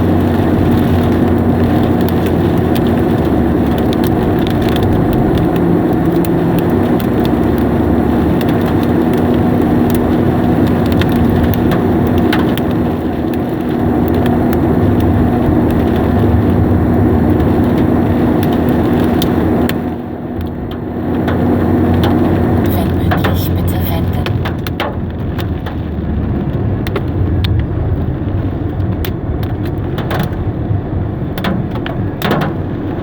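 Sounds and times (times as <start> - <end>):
car engine hum: 0.0 - 33.0
hailstones ticking: 0.0 - 33.0
heavy rain drumming on car: 0.0 - 33.0.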